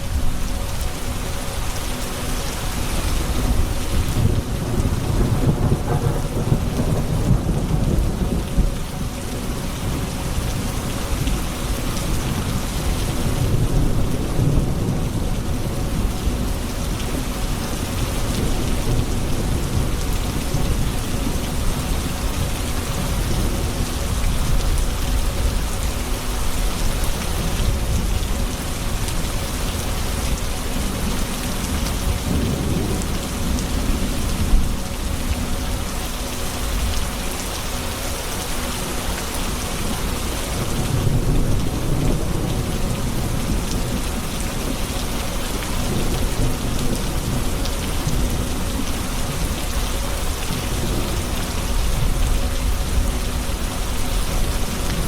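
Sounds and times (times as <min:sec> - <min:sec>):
heavy rain: 0:00.0 - 0:55.0
rolling thunder: 0:03.2 - 0:10.7.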